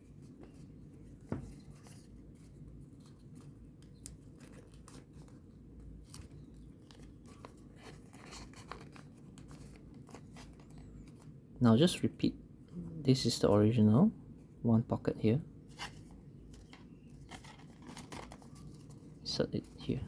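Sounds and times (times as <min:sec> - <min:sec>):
paper rustling and crinkling: 0:00.0 - 0:11.4, 0:15.7 - 0:20.0.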